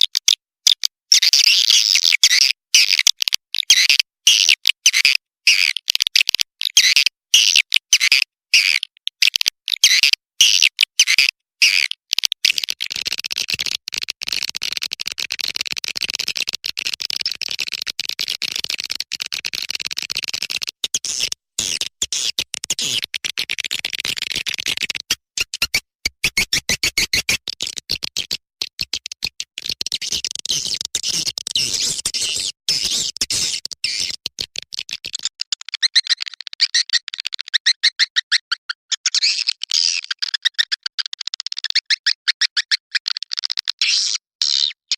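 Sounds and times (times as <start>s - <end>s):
fast run of clicks: 12.4s - 37.5s
high bird chirping and twittering: 30.6s - 34.2s.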